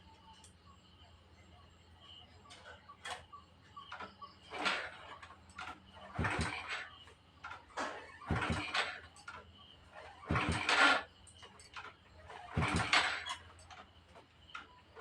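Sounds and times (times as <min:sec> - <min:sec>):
motorcycle kick-start kicks: 0:02.5 - 0:15.0
engine turning over thump: 0:04.0 - 0:15.0.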